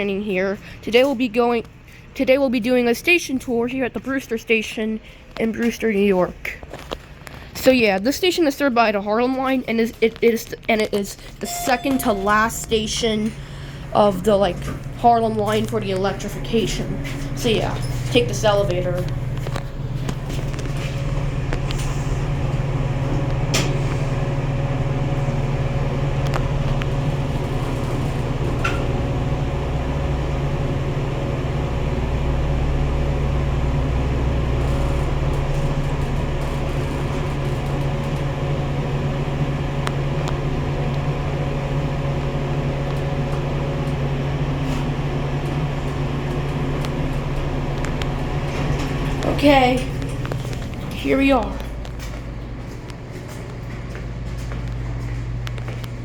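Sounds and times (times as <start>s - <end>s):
deep elevator rumble: 11.4s - 56.0s
elevator machine hum: 11.4s - 56.0s.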